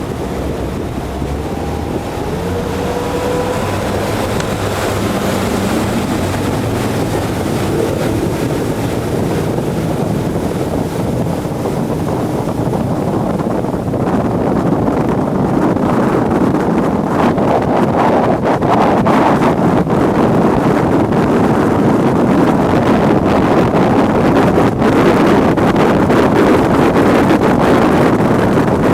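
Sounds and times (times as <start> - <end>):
outboard motor at high speed: 0.0 - 28.9
wind buffeting microphone: 0.0 - 28.9.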